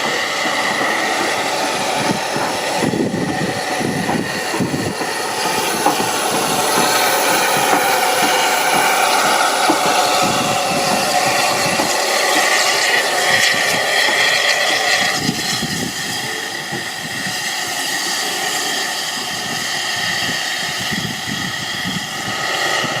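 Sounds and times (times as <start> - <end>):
steam hiss: 0.0 - 23.0
train wheels rumbling and rattling: 0.0 - 23.0.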